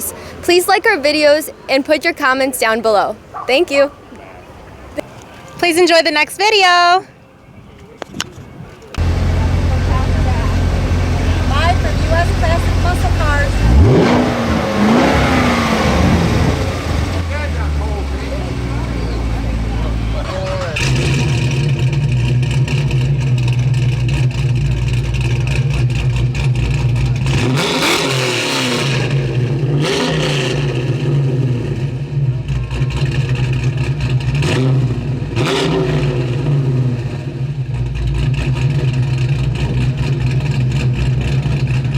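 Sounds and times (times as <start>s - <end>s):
car engine idling and revving: 8.8s - 41.9s.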